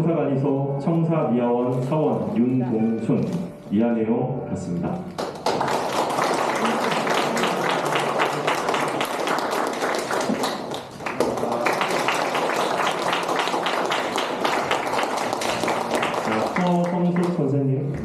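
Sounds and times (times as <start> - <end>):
audience applauding: 5.2 - 17.6.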